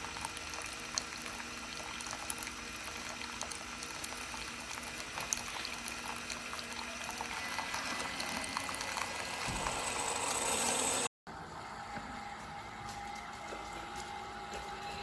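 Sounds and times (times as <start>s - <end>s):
hot water pouring into cup: 0.0s - 11.1s.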